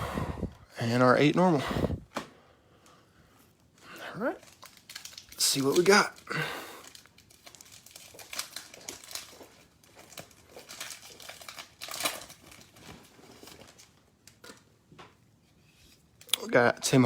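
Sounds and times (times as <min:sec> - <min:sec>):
card pack wrapper crinkling: 0:04.2 - 0:14.6.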